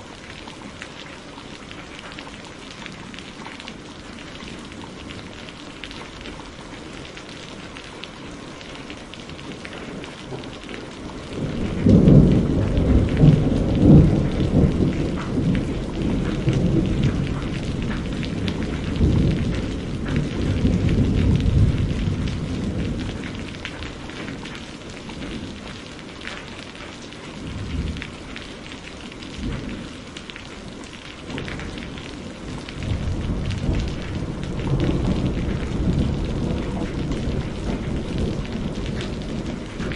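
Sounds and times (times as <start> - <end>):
steady rain: 0.0 - 39.9
thunder rumbling: 9.4 - 25.8, 31.3 - 39.9.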